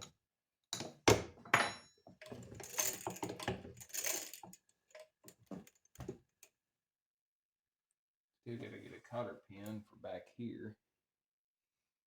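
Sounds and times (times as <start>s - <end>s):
metal tools clinking: 1.5s - 4.6s.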